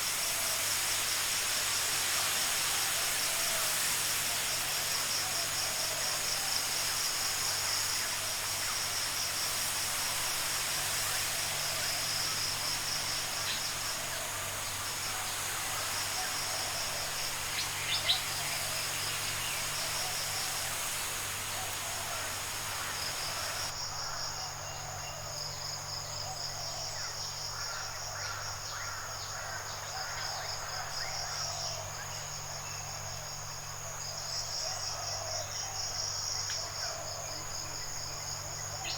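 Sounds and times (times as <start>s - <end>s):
background hiss: 0.0s - 24.5s
insects trilling: 0.0s - 38.9s.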